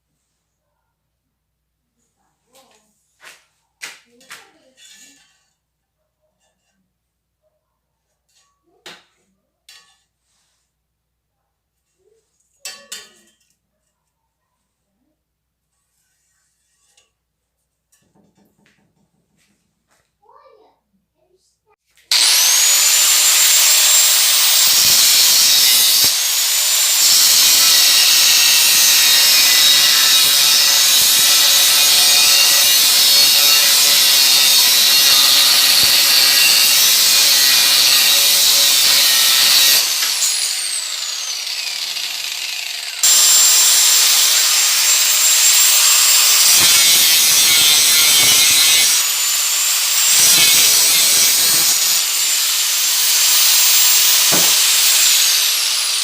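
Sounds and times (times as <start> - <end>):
power tool motor working wood: 22.1 - 56.0.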